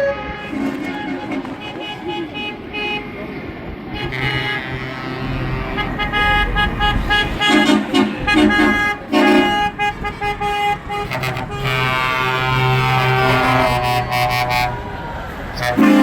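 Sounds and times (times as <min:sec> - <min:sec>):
vehicle horns tooting: 0:00.0 - 0:16.0
low engine hum: 0:00.3 - 0:16.0.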